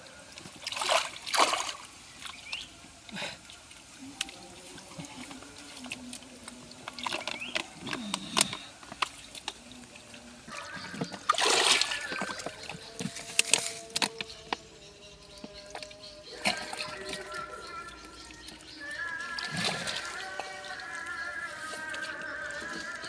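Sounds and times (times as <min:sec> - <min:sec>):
river water splashing and trickling: 0:00.0 - 0:23.0
sharp splashes: 0:00.6 - 0:02.7, 0:11.1 - 0:12.8.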